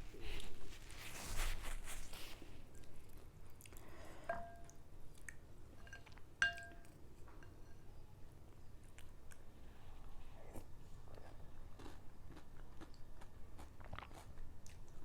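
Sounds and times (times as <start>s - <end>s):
spoon clinking against bowl: 4.3s - 4.8s, 5.8s - 8.0s
wet eating sounds: 10.4s - 15.0s.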